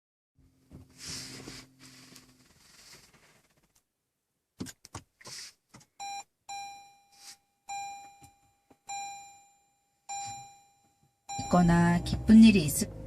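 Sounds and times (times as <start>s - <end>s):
car warning chime dinging: 6.0s - 13.0s.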